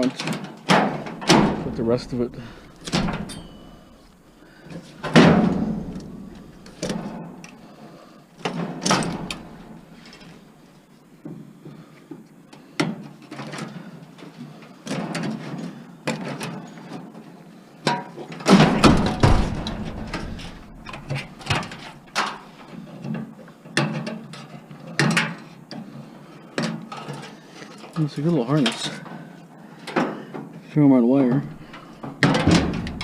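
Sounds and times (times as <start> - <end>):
metal knocks and clanks: 0.7 - 7.4, 8.4 - 10.4, 18.5 - 22.6, 31.3 - 33.0
heavy metal bang: 1.2 - 4.2, 5.0 - 7.0, 18.6 - 22.2, 31.5 - 33.0.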